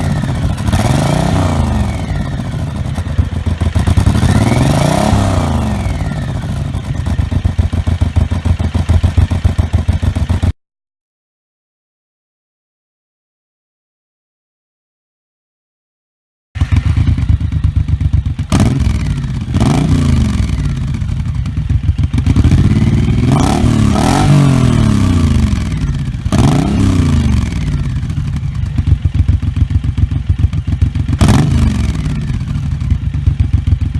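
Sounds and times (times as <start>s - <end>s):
motorcycle engine idling and revving: 0.0s - 10.6s, 16.6s - 33.9s.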